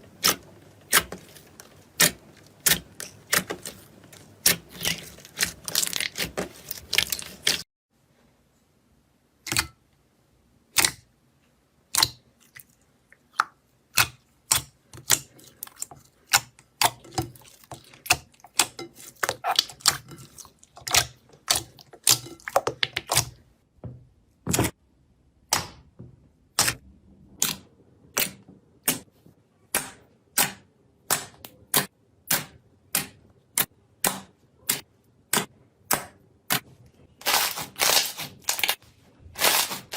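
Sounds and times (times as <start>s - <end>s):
slime crackling: 0.1s - 7.6s, 37.2s - 38.8s, 39.4s - 39.9s.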